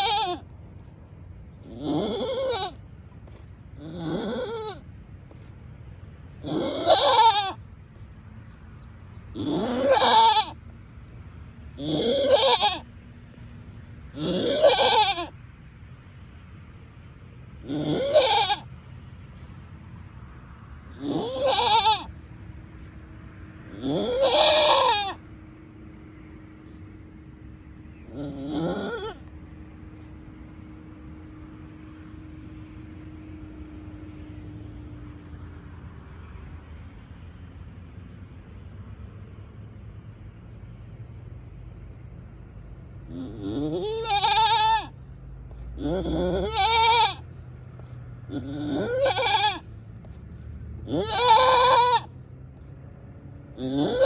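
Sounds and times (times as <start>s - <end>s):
goat bleating: 0.0s - 0.9s, 1.6s - 5.5s, 6.2s - 7.6s, 9.3s - 10.6s, 11.8s - 12.9s, 14.1s - 15.4s, 17.6s - 18.8s, 20.9s - 22.2s, 23.6s - 25.3s, 28.0s - 29.3s, 43.1s - 52.2s, 53.5s - 54.0s.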